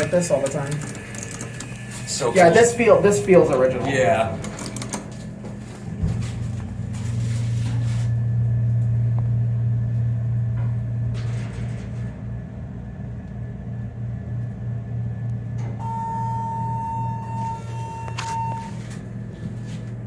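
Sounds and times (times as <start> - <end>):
elevator pump motor hum: 0.0 - 20.0
high-pitched beep: 15.8 - 18.8.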